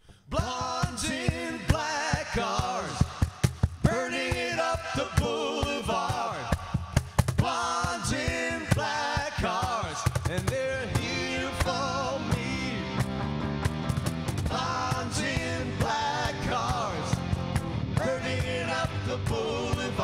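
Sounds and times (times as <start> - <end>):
lead singer singing: 0.3 - 13.0, 14.5 - 17.3, 18.0 - 20.0
steady drum beat: 0.3 - 20.0
electric guitars: 10.8 - 20.0.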